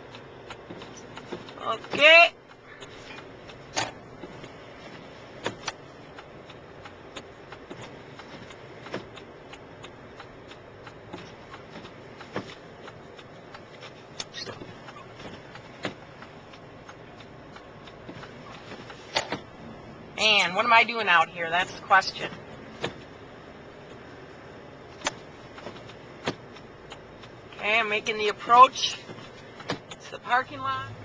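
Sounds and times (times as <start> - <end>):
sharp clicks: 0.0 - 19.5, 22.3 - 27.6
car engine and road noise: 0.0 - 31.0.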